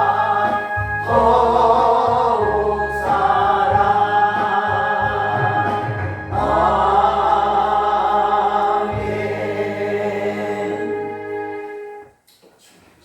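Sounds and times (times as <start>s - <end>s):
group of voices singing a hymn: 0.0s - 12.1s.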